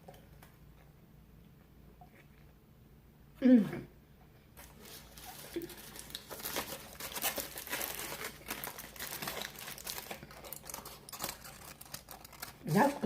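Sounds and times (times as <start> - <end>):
food wrapper crinkling: 4.6 - 13.0.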